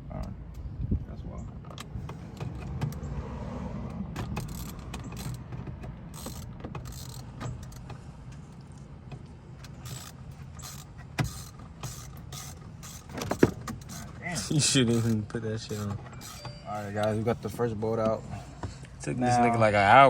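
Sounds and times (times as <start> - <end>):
socket wrench clicks and knocks: 4.1 - 14.1.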